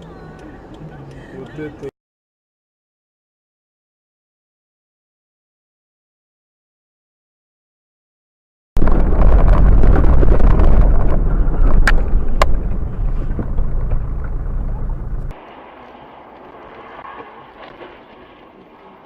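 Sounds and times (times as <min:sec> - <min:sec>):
quiet road noise: 0:00.0 - 0:01.9, 0:10.5 - 0:19.0
vehicle low rumbling: 0:08.8 - 0:19.0.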